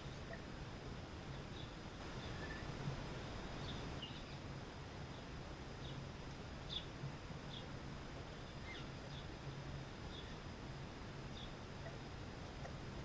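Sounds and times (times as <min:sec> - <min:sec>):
background hiss: 0:00.0 - 0:13.0
songbirds chirping: 0:00.0 - 0:13.0.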